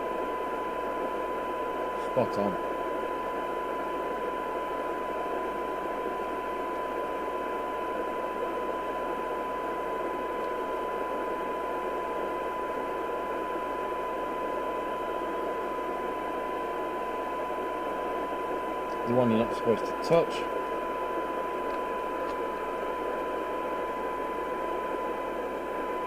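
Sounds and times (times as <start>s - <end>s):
radio receiver hiss: 10.0s - 26.0s.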